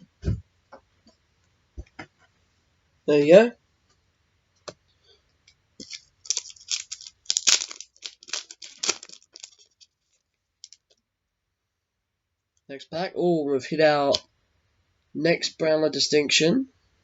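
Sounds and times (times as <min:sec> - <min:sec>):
foil wrapper tearing and crinkling: 0:05.8 - 0:10.0.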